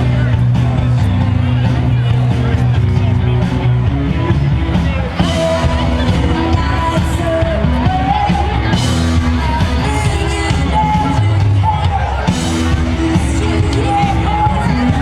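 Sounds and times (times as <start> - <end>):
live rock band playing: 0.0 - 15.0
person singing: 5.2 - 15.0.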